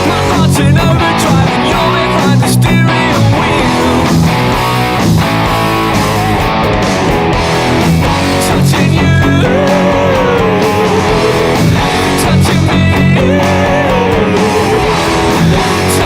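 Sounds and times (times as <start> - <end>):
electric guitar chords and lead: 0.0 - 16.0.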